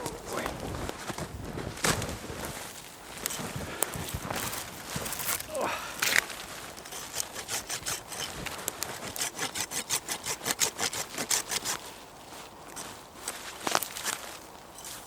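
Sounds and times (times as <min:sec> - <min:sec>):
hand saw cutting branch: 0:04.3 - 0:11.9.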